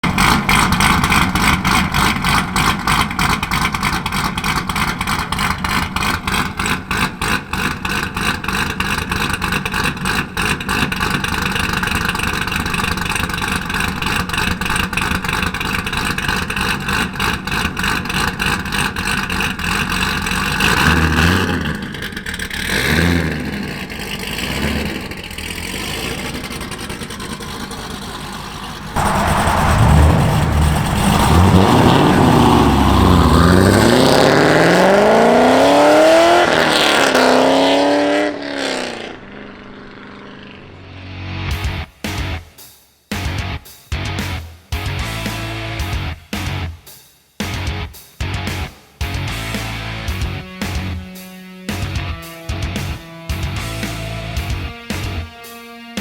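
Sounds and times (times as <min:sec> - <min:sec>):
lopey engine exhaust idling: 0:00.0 - 0:34.6
engine revving blips: 0:00.0 - 0:41.7.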